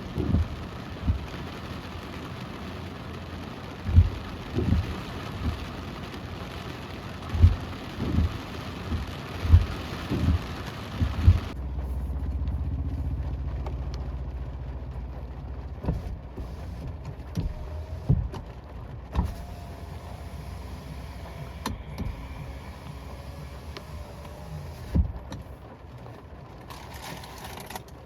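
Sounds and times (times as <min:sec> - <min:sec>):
car engine idling: 0:00.0 - 0:28.0
rain hiss: 0:00.0 - 0:28.0
knocks or thumps: 0:03.9 - 0:05.6, 0:07.3 - 0:11.6, 0:17.3 - 0:18.5.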